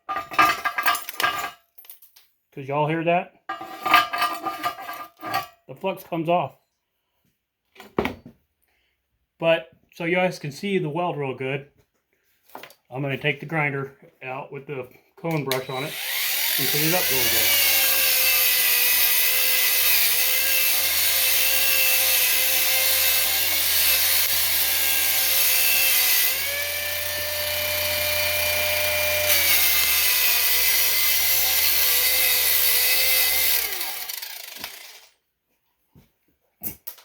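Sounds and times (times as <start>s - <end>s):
grinder with wire brush whining: 15.3s - 35.2s.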